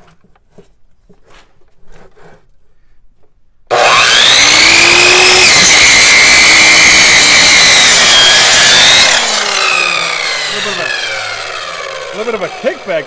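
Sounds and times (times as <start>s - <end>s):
electric saw cutting meat and bone: 3.7s - 13.0s.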